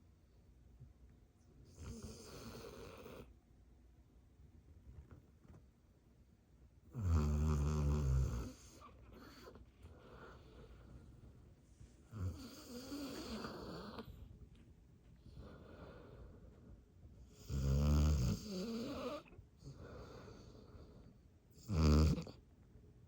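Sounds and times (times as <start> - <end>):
dog snoring: 1.7 - 3.3, 6.9 - 10.8, 12.1 - 14.2, 17.3 - 22.4.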